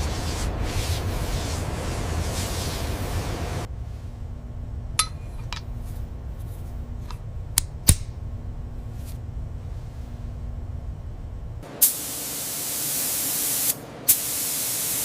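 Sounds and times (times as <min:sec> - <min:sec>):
hiss: 0:00.0 - 0:03.7, 0:11.8 - 0:15.0
machinery hum: 0:00.0 - 0:12.3
metallic clinks and taps: 0:05.0 - 0:05.6
faint held tone: 0:05.0 - 0:05.7.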